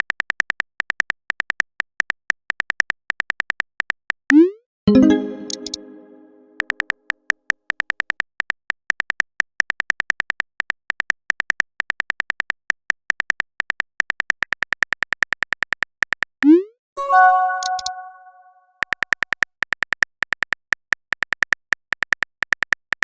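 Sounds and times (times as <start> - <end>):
chiming notification tone: 4.9 - 6.6, 17.0 - 18.6.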